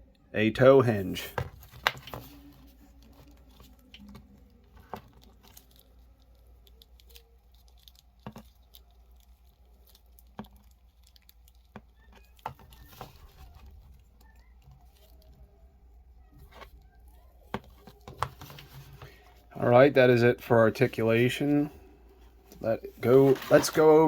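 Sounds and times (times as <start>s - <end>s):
soft rustling: 20.7s - 24.0s.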